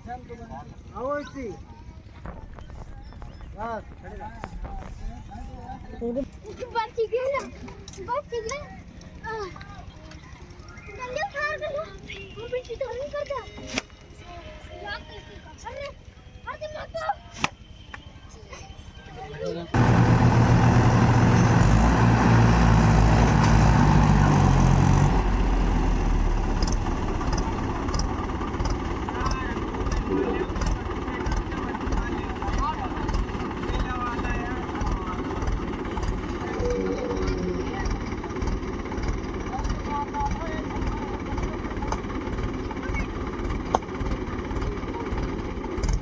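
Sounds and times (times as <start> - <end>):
tractor diesel engine running: 19.7 - 46.0.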